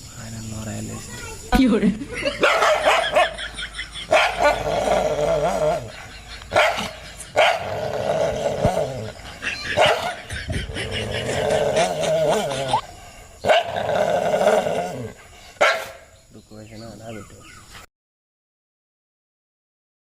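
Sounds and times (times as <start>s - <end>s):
dog barking: 2.3s - 3.5s, 4.1s - 4.6s, 5.9s - 7.7s, 9.7s - 10.2s, 13.4s - 13.8s, 15.6s - 16.1s.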